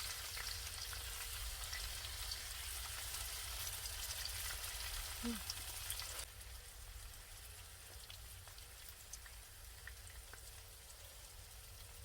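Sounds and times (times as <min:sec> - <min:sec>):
meat sizzling in a pan: 0:00.0 - 0:12.0
small pops and crackles: 0:07.1 - 0:12.0.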